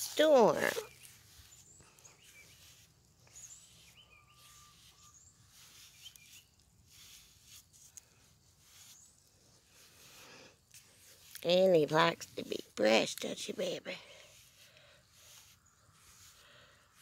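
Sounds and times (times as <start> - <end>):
faint bird chirps: 0.4 - 7.3.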